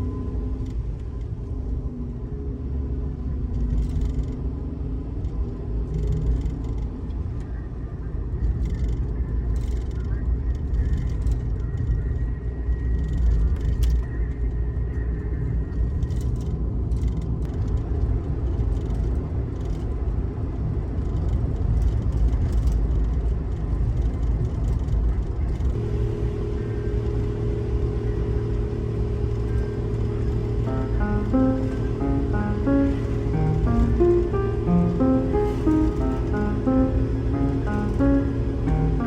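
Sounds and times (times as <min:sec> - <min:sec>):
car interior rumble: 0:25.7 - 0:30.7
background music: 0:25.8 - 0:39.0.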